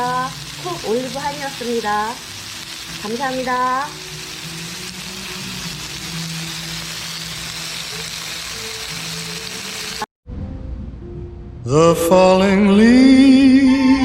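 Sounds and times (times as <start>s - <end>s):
meat and vegetables sizzling on griddle: 0.0s - 10.1s
soft background music: 0.0s - 14.0s.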